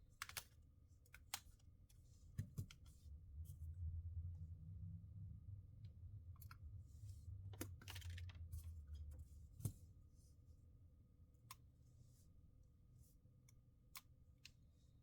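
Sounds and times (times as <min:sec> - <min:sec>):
low hum: 0:03.0 - 0:09.6.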